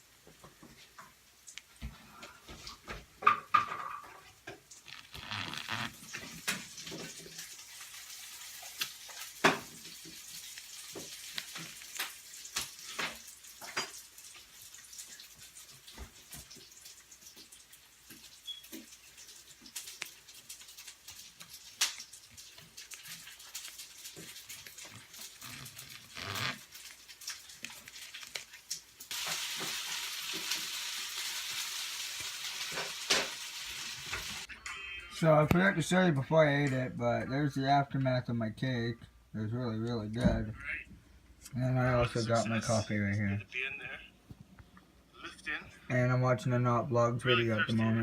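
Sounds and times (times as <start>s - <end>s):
steady hiss: 27.7s - 34.5s.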